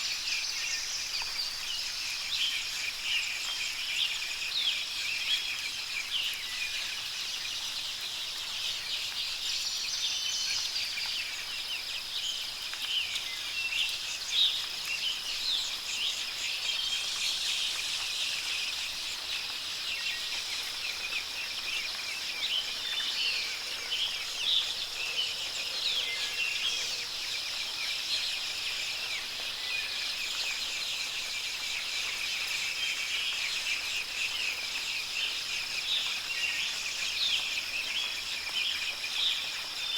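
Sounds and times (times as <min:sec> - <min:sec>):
soft rain hiss: 0:00.0 - 0:39.9.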